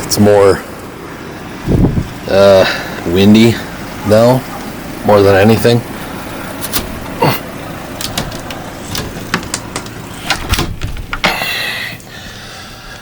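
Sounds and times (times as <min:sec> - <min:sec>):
blizzard wind blowing hard: 0:01.6 - 0:02.2
short clicks and knocks: 0:06.6 - 0:07.2, 0:08.0 - 0:11.5.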